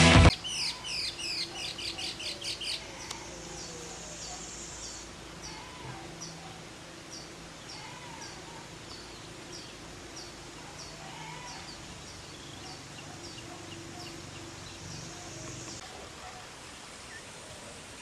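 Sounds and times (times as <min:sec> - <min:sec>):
bird chirping high and falling: 0:00.2 - 0:06.4
birds warbling softly: 0:00.2 - 0:18.0.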